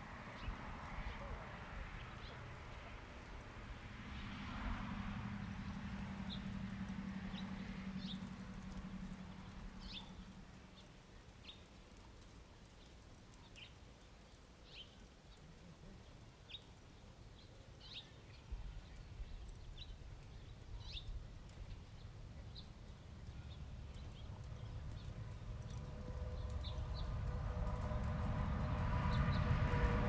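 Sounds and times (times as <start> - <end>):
faint low outdoor rumble: 0.0 - 30.0
small bird chirping: 7.3 - 11.7, 16.5 - 27.3.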